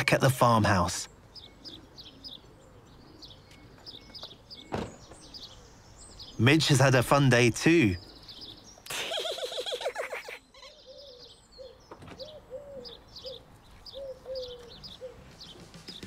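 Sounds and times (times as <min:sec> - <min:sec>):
birds cooing: 0:00.0 - 0:16.0
wavering bird call: 0:08.0 - 0:15.2.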